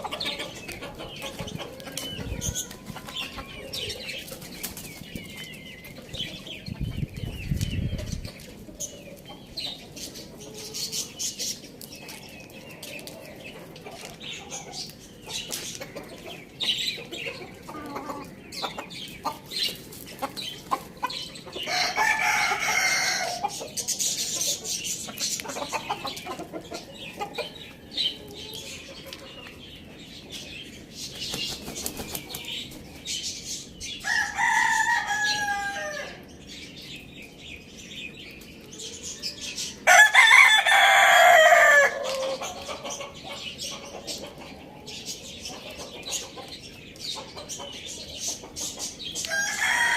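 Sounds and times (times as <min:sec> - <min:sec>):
chickens clucking: 0:00.0 - 0:49.9
rooster crowing: 0:21.7 - 0:23.4, 0:34.0 - 0:36.2, 0:39.8 - 0:42.0, 0:49.3 - 0:49.9.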